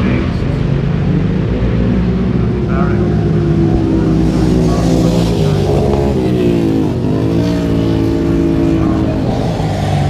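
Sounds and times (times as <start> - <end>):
racing motorcycle engines: 0.0 - 10.0.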